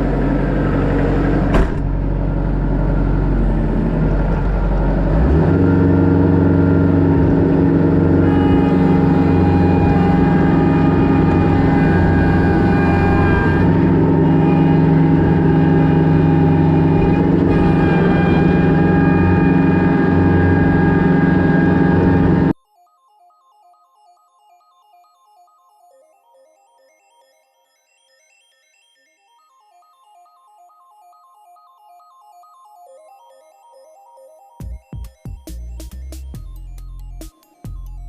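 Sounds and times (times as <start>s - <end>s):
tractor diesel engine running: 0.0s - 22.6s
high whining tones: 4.5s - 22.6s.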